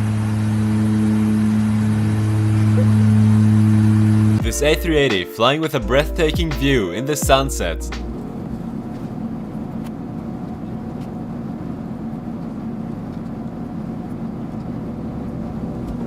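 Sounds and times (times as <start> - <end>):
airliner drone in flight: 0.0 - 4.4, 8.1 - 16.0.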